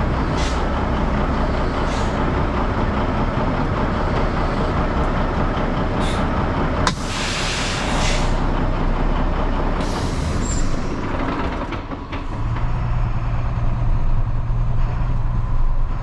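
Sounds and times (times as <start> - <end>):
truck engine running: 0.0 - 16.0
short hiss: 6.9 - 8.4.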